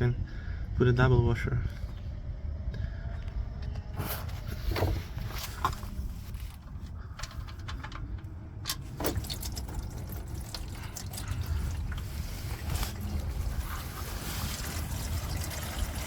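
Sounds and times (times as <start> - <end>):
oil pouring into a pan: 9.2 - 12.0, 12.9 - 16.0.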